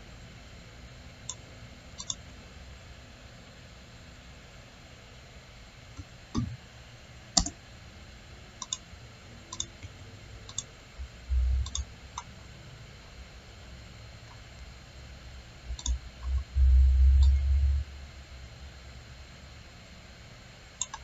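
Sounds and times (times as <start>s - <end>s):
computer mouse clicking: 2.0s - 2.2s, 7.4s - 7.6s, 8.6s - 8.8s, 9.5s - 9.9s, 10.5s - 10.7s, 11.6s - 12.3s, 15.7s - 16.5s, 20.8s - 21.0s.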